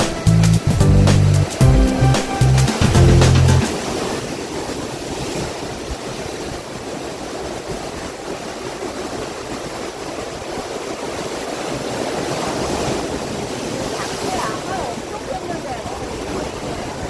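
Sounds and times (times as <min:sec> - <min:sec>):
waves breaking on rocks: 0:03.7 - 0:17.0.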